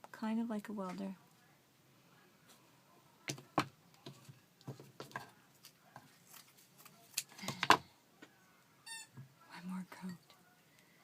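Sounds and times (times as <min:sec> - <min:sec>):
hands handling craft materials: 0:03.2 - 0:08.3.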